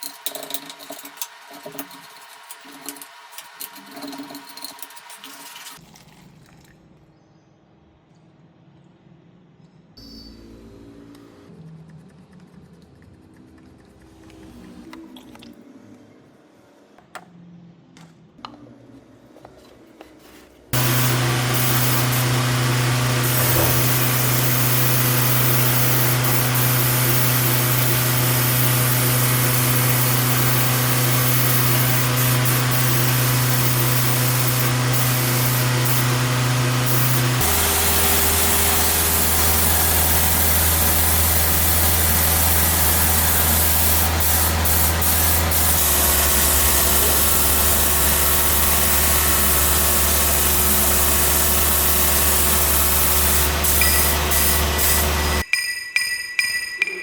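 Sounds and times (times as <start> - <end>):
machine hiss: 20.8 - 55.5
machine humming: 20.8 - 55.5.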